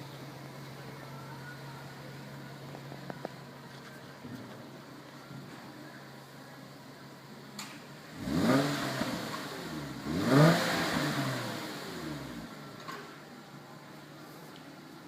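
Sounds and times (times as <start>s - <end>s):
car engine idling and revving: 6.1s - 15.0s.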